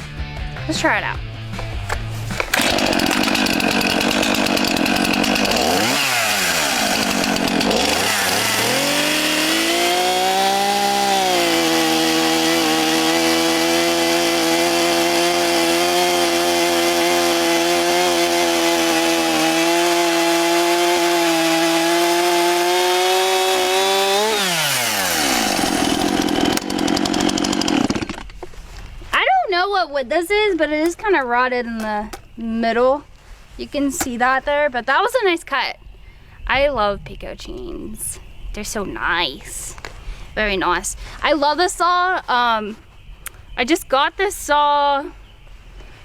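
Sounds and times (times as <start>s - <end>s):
chainsaw cutting through log: 2.4s - 28.3s.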